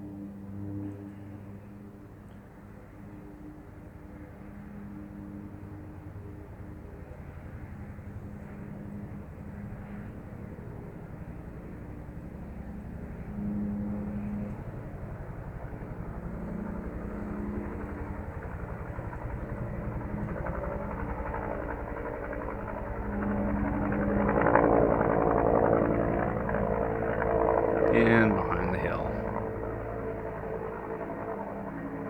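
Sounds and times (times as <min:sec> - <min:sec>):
helicopter engine hum: 0:02.6 - 0:32.0
helicopter rotor beating: 0:06.7 - 0:32.0.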